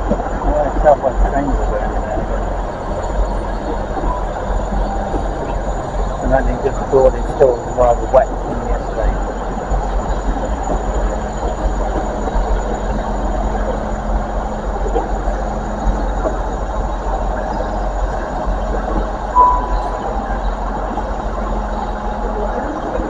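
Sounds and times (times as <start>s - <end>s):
train engine hum: 0.0s - 23.0s
short beep: 19.3s - 20.3s.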